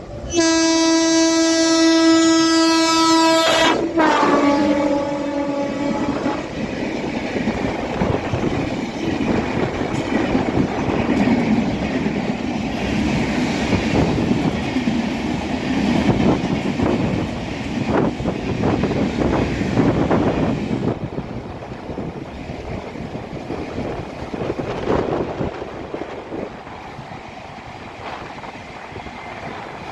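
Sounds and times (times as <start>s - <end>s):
train wheels rumbling over track: 0.0s - 29.9s
train horn: 0.2s - 6.6s.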